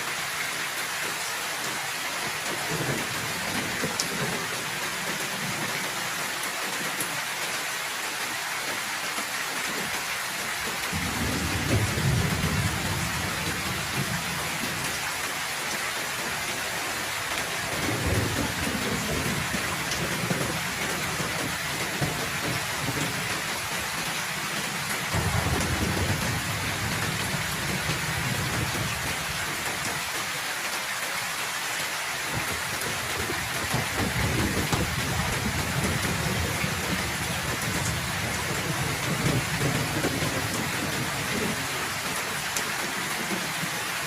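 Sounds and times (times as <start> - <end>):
heavy rain falling: 0.0 - 44.0
low rolls of thunder: 10.9 - 15.0, 17.6 - 23.4, 25.1 - 29.7, 32.3 - 41.8.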